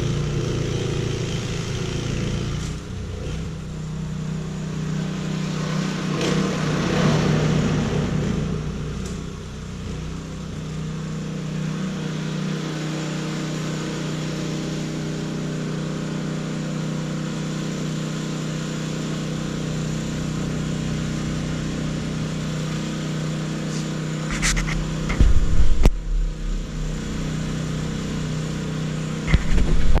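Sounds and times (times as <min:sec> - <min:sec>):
engine running: 0:00.0 - 0:30.0
heavy low thumps: 0:24.7 - 0:28.5.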